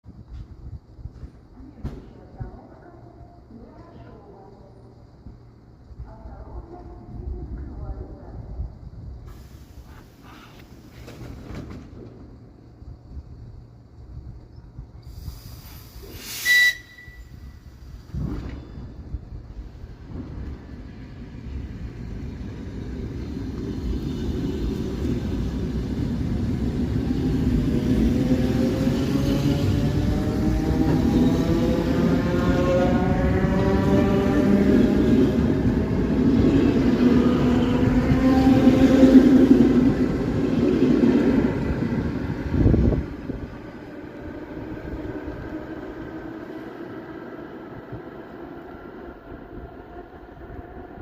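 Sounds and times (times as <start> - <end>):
electric train accelerating: 8.9 - 51.0
brief rush of air: 15.0 - 19.0.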